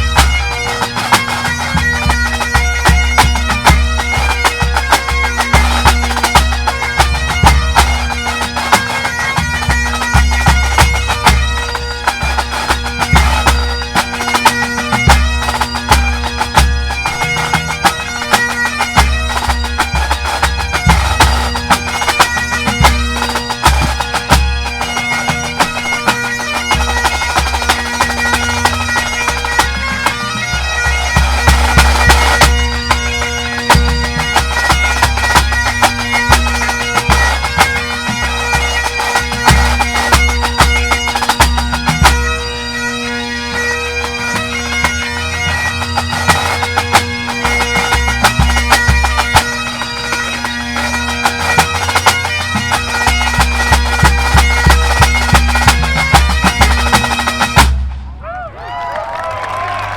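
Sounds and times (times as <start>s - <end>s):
bagpipes playing fast tune: 0.0s - 59.9s.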